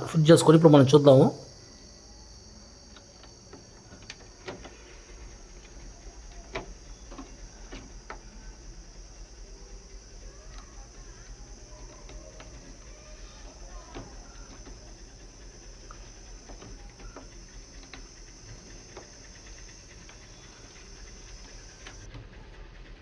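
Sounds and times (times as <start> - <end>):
faint steady hiss: 0.0 - 22.2
faint clicks and taps: 1.5 - 22.8.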